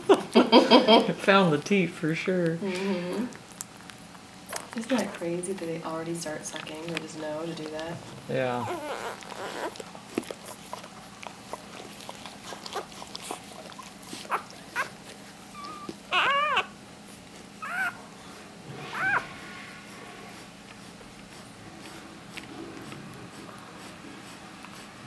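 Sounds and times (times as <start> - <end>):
puppies squealing: 8.4 - 16.8, 17.6 - 18.0, 18.7 - 22.0.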